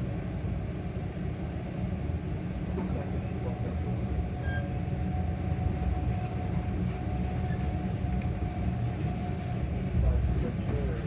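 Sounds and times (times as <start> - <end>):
train rumbling inside passenger car: 0.0 - 11.0.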